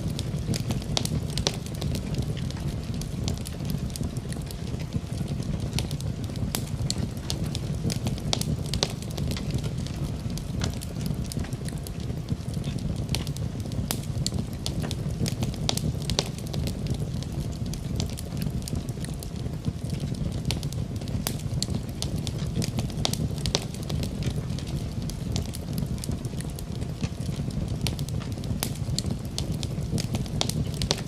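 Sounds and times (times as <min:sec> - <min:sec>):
burning logs crackling and popping: 0:00.0 - 0:31.0
fire rumbling low: 0:00.0 - 0:31.0.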